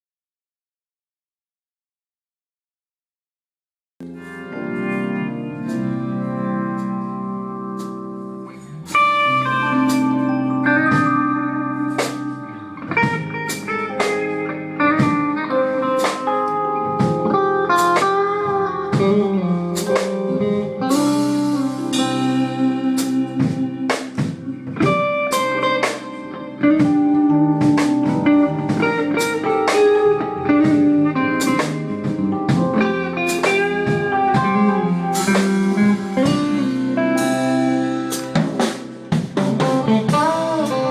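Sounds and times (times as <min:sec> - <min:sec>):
electric guitar lead: 0:04.0 - 0:40.9
live blues rock band: 0:04.0 - 0:40.9.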